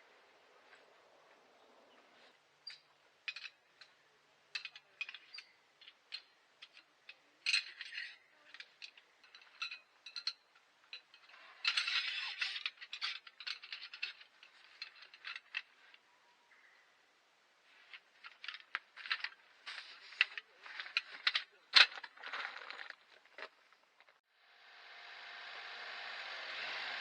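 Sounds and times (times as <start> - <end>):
metal items clinking and rattling: 2.6 - 16.0, 17.7 - 24.2.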